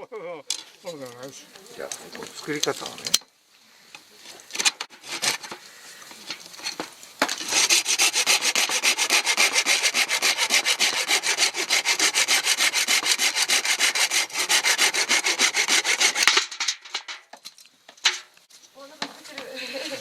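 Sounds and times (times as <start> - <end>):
saw cutting bamboo: 4.6 - 5.6, 7.3 - 16.6.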